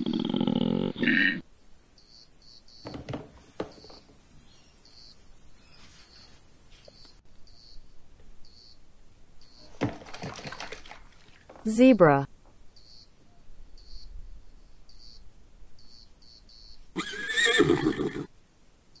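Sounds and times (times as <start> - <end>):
faint cricket-like chirps: 1.4 - 9.8, 12.3 - 17.3, 18.3 - 19.0
soft knocks: 2.8 - 4.2
hand splashing in soapy water: 9.7 - 11.6.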